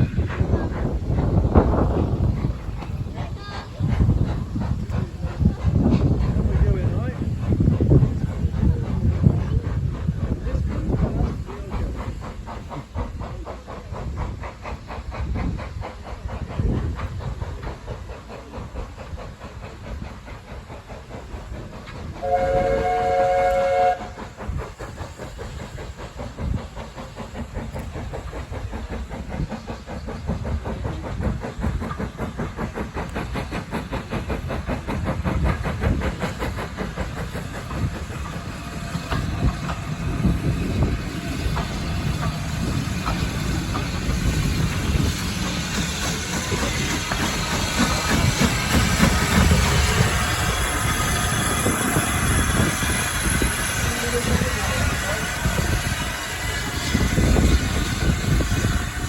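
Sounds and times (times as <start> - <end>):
train wheels clattering on rails: 0.0 - 59.0
train horn chord blast: 22.2 - 24.0.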